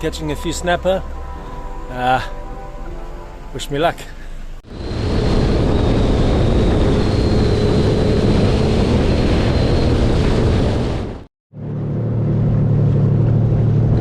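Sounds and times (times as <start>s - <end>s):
wind on microphone: 4.6s - 11.3s
jet ski engine drone: 4.7s - 14.0s.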